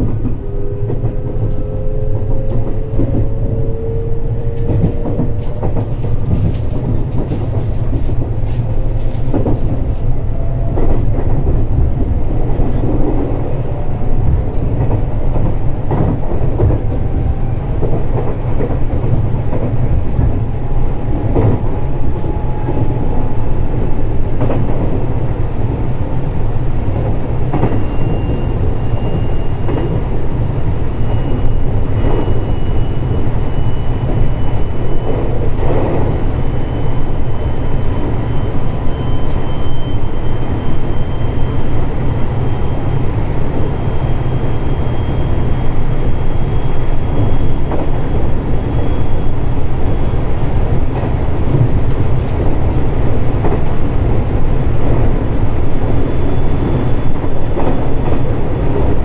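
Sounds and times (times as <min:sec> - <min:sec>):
rail-joint clicks: 0:00.0 - 0:25.3, 0:26.9 - 0:30.2, 0:30.9 - 0:37.0, 0:46.8 - 0:48.8, 0:50.9 - 0:55.3, 0:55.9 - 0:59.0
wheels rumbling on rail: 0:00.0 - 0:59.0.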